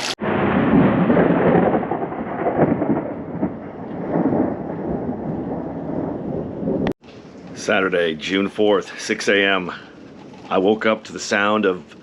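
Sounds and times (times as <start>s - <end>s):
heavy rain pouring: 0.0s - 5.1s.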